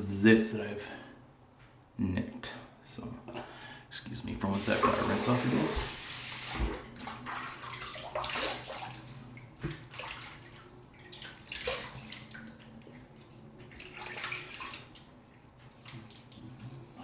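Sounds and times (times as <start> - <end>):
water splashing over a sink: 4.6 - 16.8.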